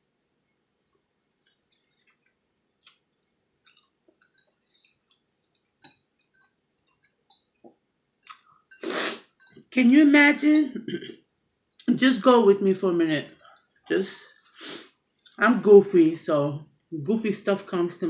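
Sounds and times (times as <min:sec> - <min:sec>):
person chewing food: 0:00.3 - 0:09.7.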